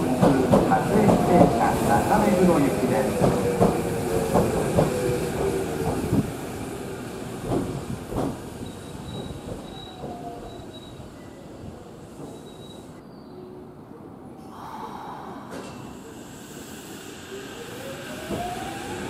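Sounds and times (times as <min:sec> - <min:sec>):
electric train rolling past: 0:00.0 - 0:12.9, 0:15.3 - 0:19.0
train wheels squealing: 0:08.6 - 0:11.5, 0:12.2 - 0:13.4.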